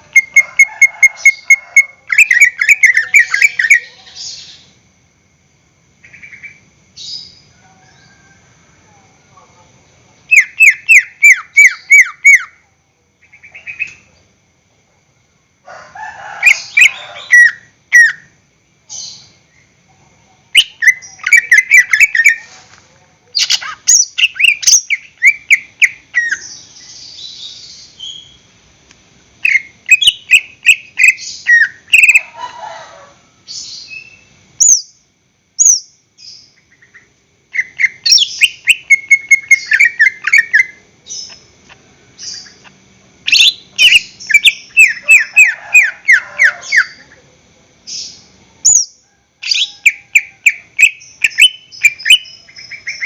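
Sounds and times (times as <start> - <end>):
bird singing downward chirps: 0.0 - 4.7, 10.3 - 12.6, 20.6 - 22.5, 23.4 - 28.5, 29.4 - 32.2, 35.6 - 41.6, 42.2 - 47.0, 47.9 - 53.0
harsh rasping bird phrases: 1.2 - 4.7.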